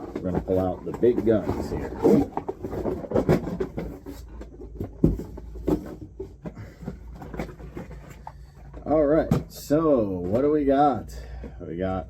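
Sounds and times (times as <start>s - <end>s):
cardboard packaging rustling: 0.0s - 8.9s.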